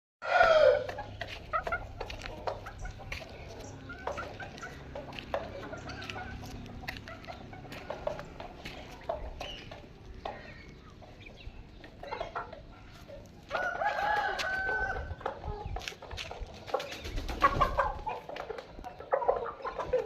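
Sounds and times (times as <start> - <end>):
rooster crowing: 0.2 - 0.9, 13.5 - 15.2
chicken clucks: 0.2 - 20.0.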